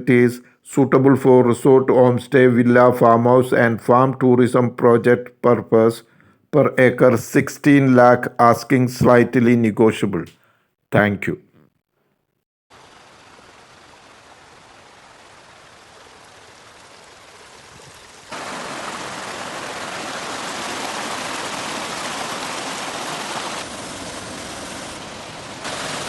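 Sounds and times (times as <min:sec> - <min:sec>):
waterfall rushing: 0:12.7 - 0:26.0.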